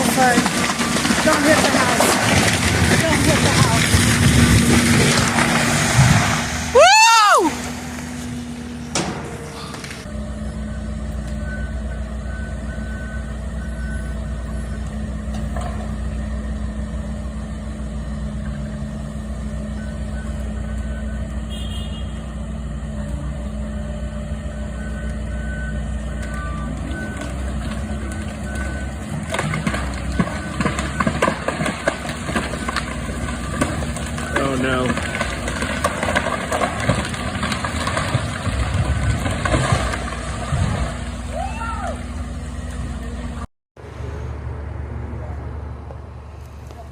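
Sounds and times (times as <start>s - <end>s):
sharp cracks and knocks: 0.0s - 6.6s, 8.9s - 10.1s, 29.1s - 41.1s
excavator diesel engine running: 0.0s - 46.9s.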